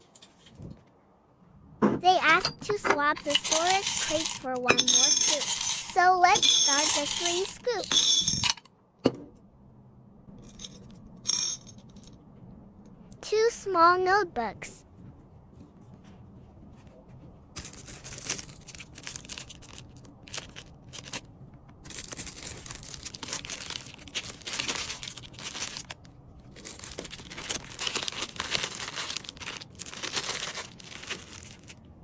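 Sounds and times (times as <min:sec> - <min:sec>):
packaging crinkling and rustling: 0:17.6 - 0:31.8.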